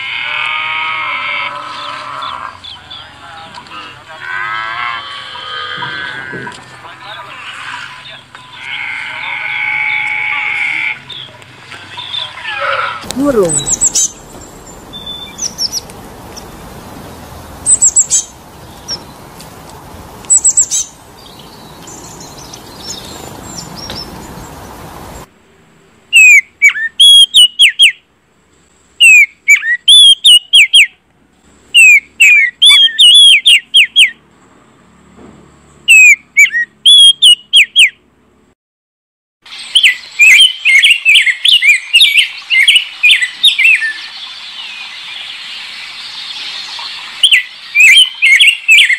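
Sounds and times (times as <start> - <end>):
songbirds chirping: 0.0 - 38.5, 39.4 - 48.9
steady background noise: 0.0 - 38.5.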